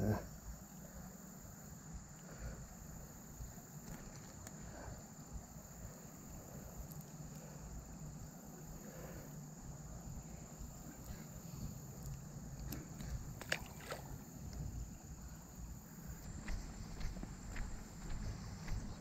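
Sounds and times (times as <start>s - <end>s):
water rumbling in creek: 12.5s - 19.0s.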